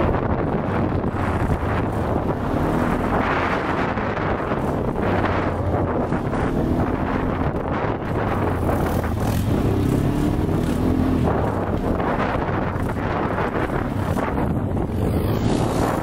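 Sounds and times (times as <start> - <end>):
quad engine running: 0.0 - 16.0
wind buffeting microphone: 0.0 - 16.0.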